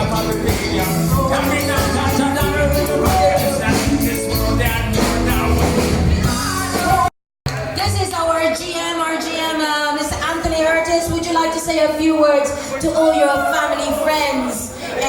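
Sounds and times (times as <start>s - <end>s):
rock music with singer and drums: 0.0s - 7.1s.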